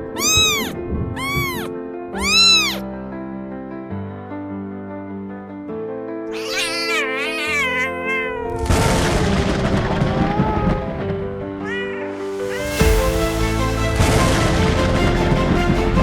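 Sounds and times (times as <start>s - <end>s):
cat meowing: 0.0s - 2.9s, 6.3s - 8.8s, 10.0s - 10.9s, 11.6s - 12.8s
background music: 0.0s - 16.0s.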